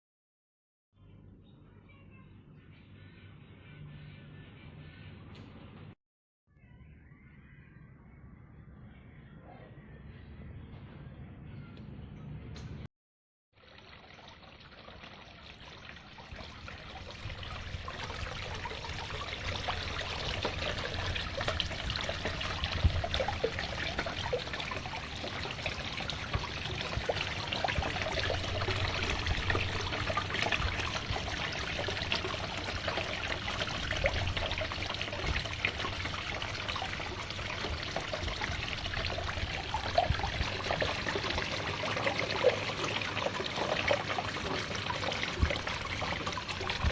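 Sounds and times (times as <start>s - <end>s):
waterfall trickling into pond: 13.6s - 46.9s.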